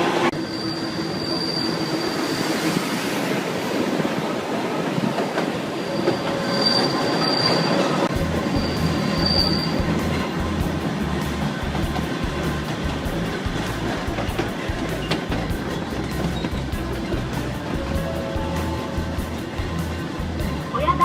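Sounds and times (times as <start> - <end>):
train wheels rumbling on rails: 0.0 - 21.0
high-pitched wheel squeals: 0.4 - 3.0, 5.8 - 10.3.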